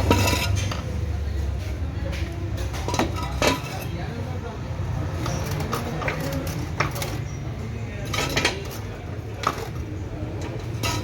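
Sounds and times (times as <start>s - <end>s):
tools clinking against metal: 0.0s - 1.0s, 10.4s - 11.0s.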